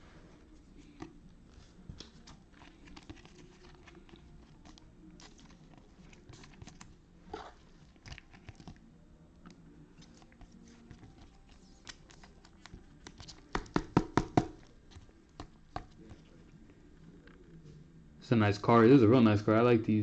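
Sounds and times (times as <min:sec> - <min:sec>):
cards and wrappers rustling: 0:00.7 - 0:06.9.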